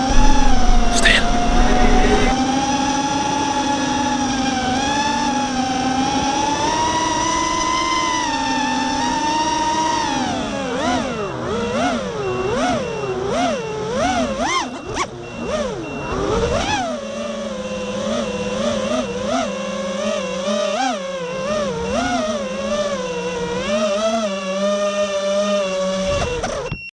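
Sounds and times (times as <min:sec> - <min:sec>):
drone motors whining: 0:00.0 - 0:02.4.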